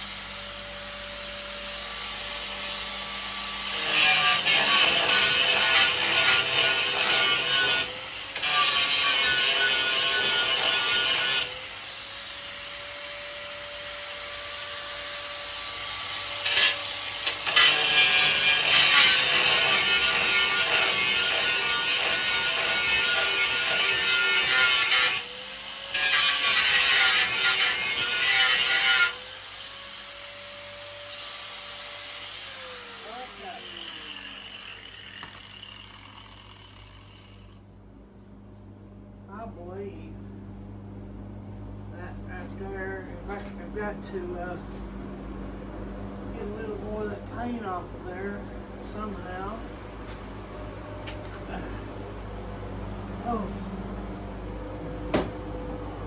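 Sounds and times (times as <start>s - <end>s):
angle grinder on sheet steel: 0.0s - 37.6s.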